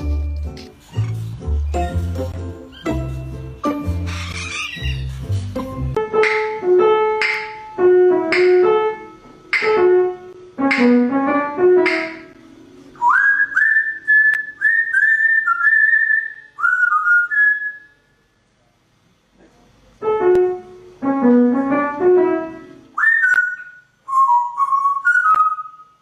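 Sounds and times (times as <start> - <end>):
piano-like melody: 0.0 - 13.9, 20.0 - 23.0
bird whistling: 4.0 - 5.2, 13.0 - 18.0, 23.0 - 26.0.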